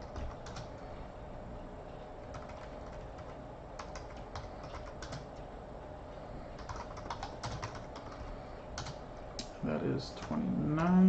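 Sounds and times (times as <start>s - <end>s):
computer keyboard typing: 0.0s - 0.8s, 2.3s - 5.3s, 6.6s - 9.0s, 10.2s - 11.0s.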